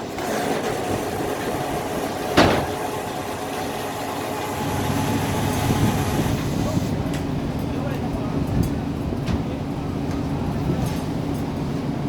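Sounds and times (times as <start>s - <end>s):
engine running: 0.0s - 12.0s
loud bang: 2.4s - 3.0s.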